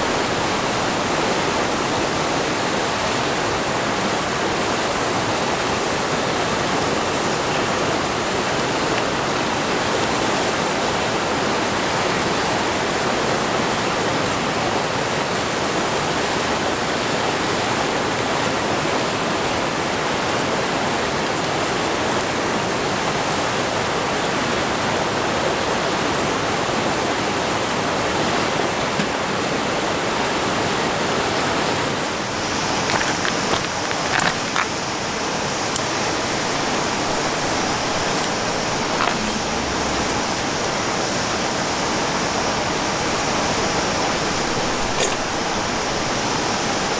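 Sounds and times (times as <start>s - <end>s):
river water rushing: 31.9s - 46.9s.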